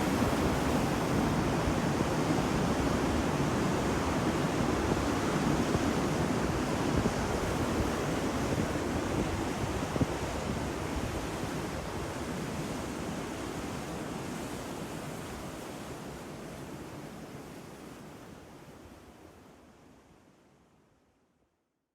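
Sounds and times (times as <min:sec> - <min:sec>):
ocean waves washing onto beach: 0:00.0 - 0:09.9.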